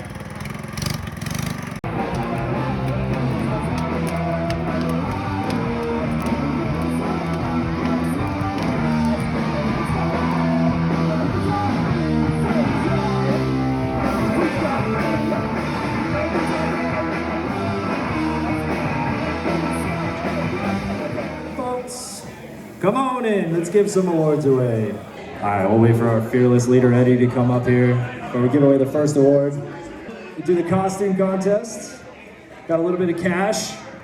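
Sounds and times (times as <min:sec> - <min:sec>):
punk rock with electric guitar: 0:01.6 - 0:22.8.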